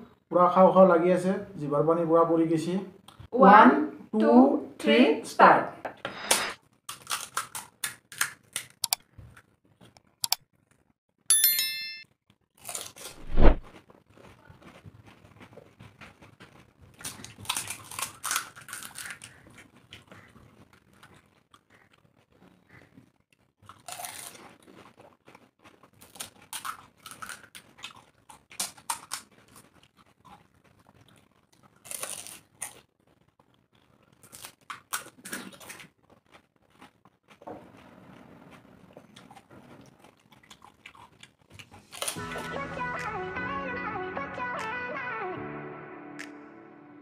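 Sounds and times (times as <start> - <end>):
crisp shells crunching: 6.9 - 8.8, 12.5 - 21.9, 23.6 - 37.4
wet chewing: 6.9 - 10.4, 12.6 - 42.5.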